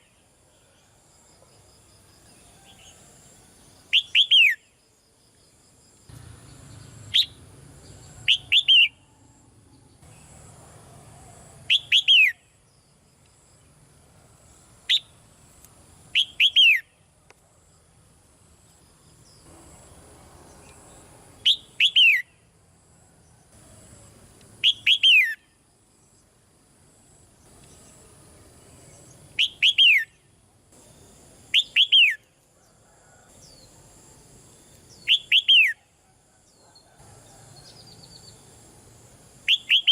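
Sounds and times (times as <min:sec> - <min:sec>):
bird calling in whistled notes: 0:03.9 - 0:04.7, 0:08.2 - 0:09.1, 0:11.7 - 0:12.5, 0:16.2 - 0:16.9, 0:21.4 - 0:22.4, 0:24.6 - 0:25.5, 0:29.4 - 0:30.2, 0:31.5 - 0:32.2, 0:35.0 - 0:35.9, 0:39.5 - 0:39.9.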